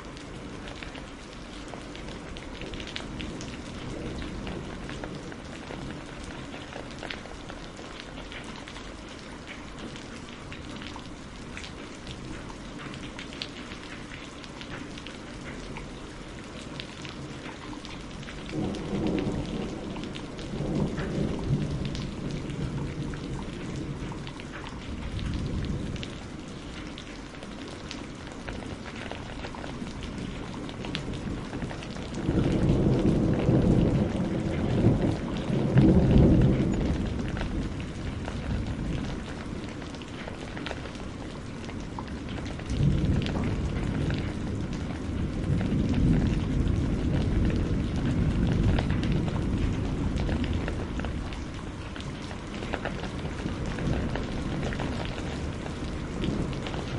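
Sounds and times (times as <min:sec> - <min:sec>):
steady rain: 0:00.0 - 0:56.9
thunder rolling: 0:18.5 - 0:24.2, 0:29.8 - 0:39.8, 0:42.2 - 0:51.7.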